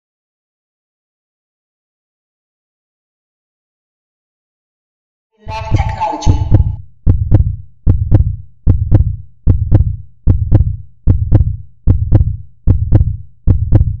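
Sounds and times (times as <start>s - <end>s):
paired deep thumps: 5.5s - 14.0s.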